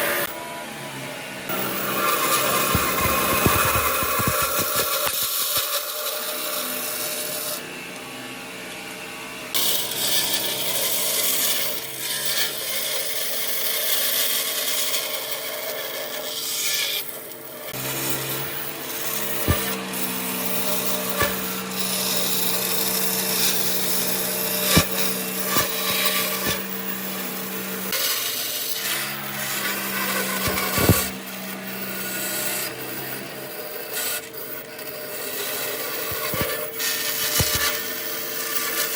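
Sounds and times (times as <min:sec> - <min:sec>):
motor hum: 0:00.0 - 0:10.8, 0:17.7 - 0:38.7
power tool rasping wood: 0:00.0 - 0:38.9
sharp knocks: 0:01.8 - 0:05.2, 0:30.4 - 0:31.2, 0:36.1 - 0:36.6.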